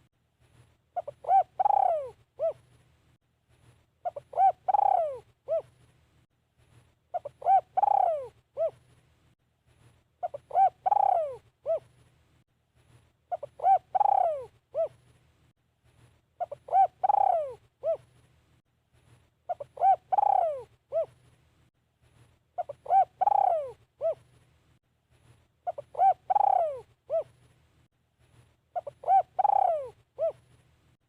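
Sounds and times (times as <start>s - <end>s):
dove cooing: 1.0s - 2.7s, 4.0s - 5.8s, 7.1s - 8.8s, 10.2s - 11.9s, 13.3s - 15.0s, 16.4s - 18.1s, 19.5s - 21.2s, 22.6s - 24.3s, 25.6s - 27.4s, 28.7s - 30.5s.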